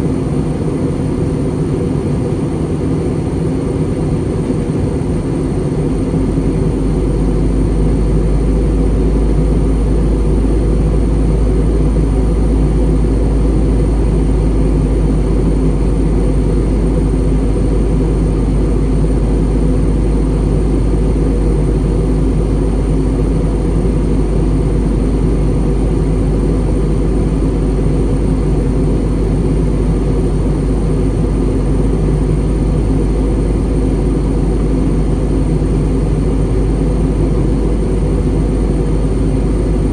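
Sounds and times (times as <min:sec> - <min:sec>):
cabin engine and airflow rumble: 0:00.0 - 0:39.9.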